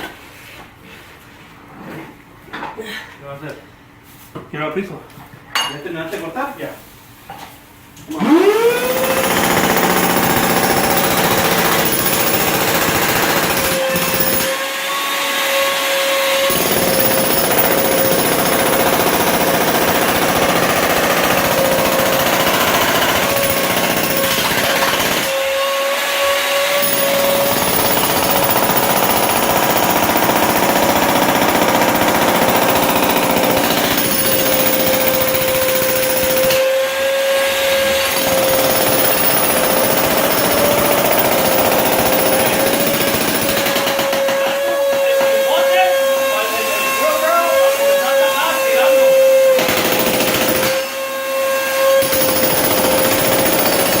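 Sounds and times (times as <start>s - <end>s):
demolition hammer motor whining: 8.1s - 14.6s, 16.3s - 36.6s
hammer pounding concrete: 8.9s - 14.6s, 16.5s - 25.4s, 26.8s - 36.7s, 37.9s - 45.7s, 49.6s - 50.8s, 52.0s - 54.0s.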